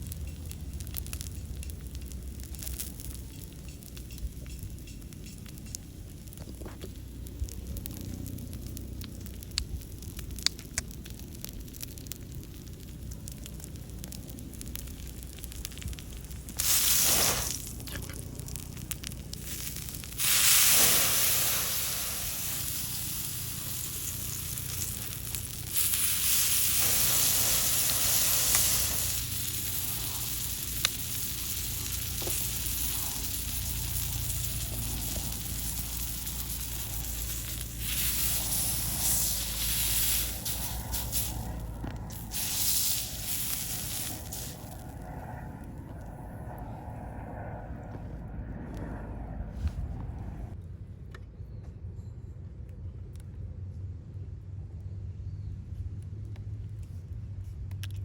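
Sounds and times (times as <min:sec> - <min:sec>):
steak sizzling over fire: 0:00.0 - 0:45.0.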